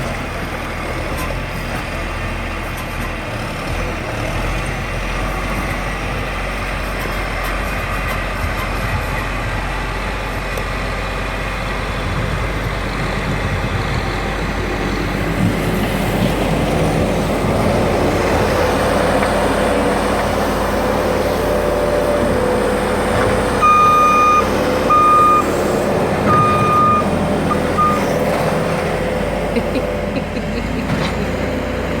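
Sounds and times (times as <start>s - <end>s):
snowplow engine running: 0.0s - 32.0s
backup alarm beeping: 23.6s - 25.6s, 26.3s - 28.1s.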